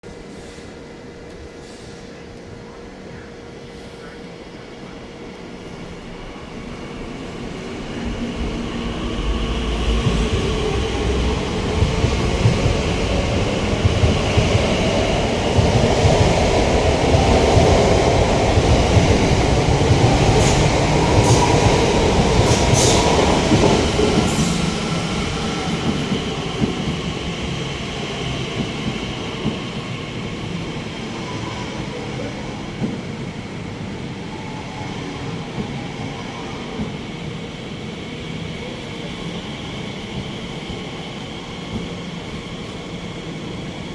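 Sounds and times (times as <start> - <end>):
train passing rumble: 0.1 - 43.9
high train squeals: 19.4 - 26.9.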